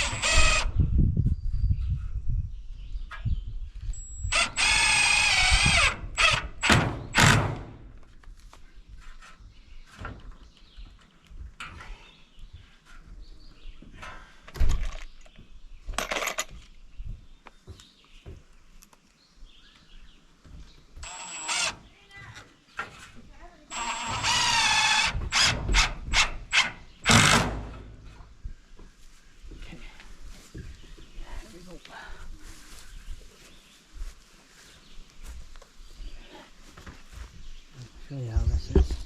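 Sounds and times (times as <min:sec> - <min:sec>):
cordless drill driving screws: 0:00.0 - 0:00.7, 0:04.3 - 0:07.7, 0:21.0 - 0:21.9, 0:23.7 - 0:27.6.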